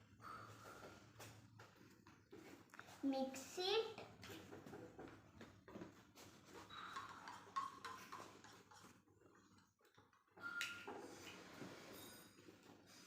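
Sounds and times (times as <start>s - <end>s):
spoon tapping container: 6.7s - 8.9s.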